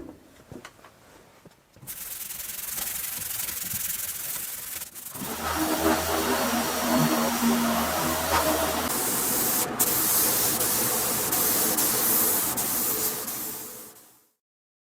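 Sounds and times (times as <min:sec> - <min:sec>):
compressed air hissing: 0:01.8 - 0:14.2
power tool humming: 0:05.0 - 0:13.4.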